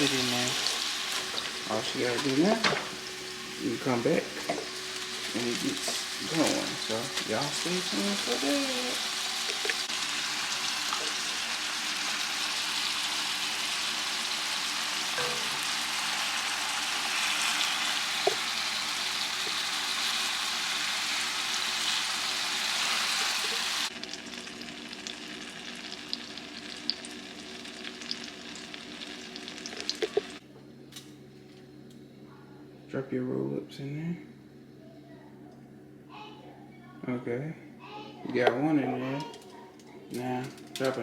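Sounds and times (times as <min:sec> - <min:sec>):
chicken sizzling in hot oil: 0:00.0 - 0:30.4
oil popping and crackling: 0:29.4 - 0:30.4.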